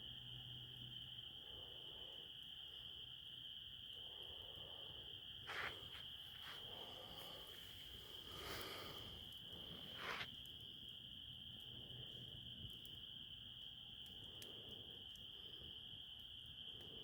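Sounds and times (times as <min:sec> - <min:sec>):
crickets chirping: 0:00.0 - 0:17.0
high insect trill: 0:00.0 - 0:17.0
fire crackling: 0:00.1 - 0:17.0.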